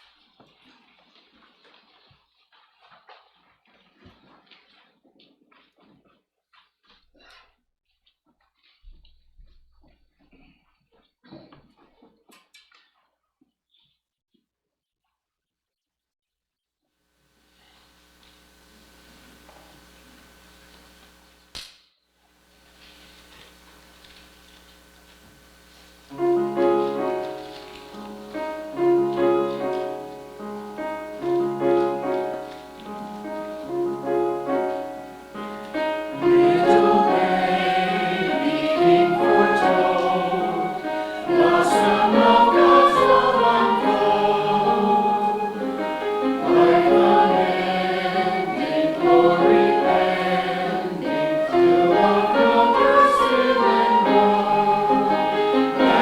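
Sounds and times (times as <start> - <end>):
church choir singing: 25.5 - 56.0
instrumental accompaniment: 26.1 - 56.0.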